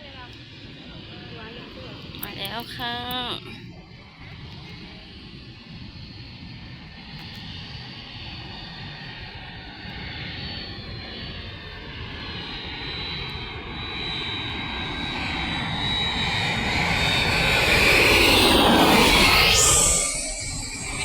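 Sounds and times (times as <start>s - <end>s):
airliner engine noise: 0.0s - 21.0s
high whine: 13.6s - 21.0s.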